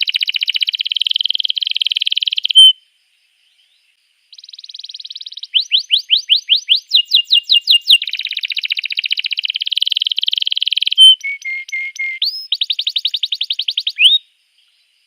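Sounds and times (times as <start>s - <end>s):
canary singing: 0.0s - 2.8s, 4.3s - 14.2s.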